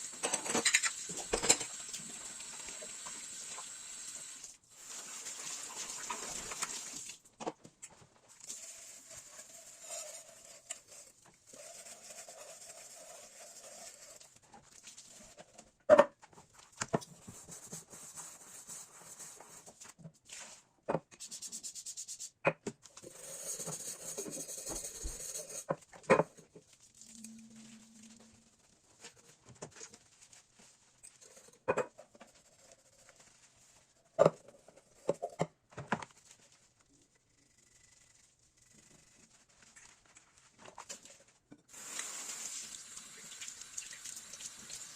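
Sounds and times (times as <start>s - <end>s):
soft rustling: 26.6s - 31.6s.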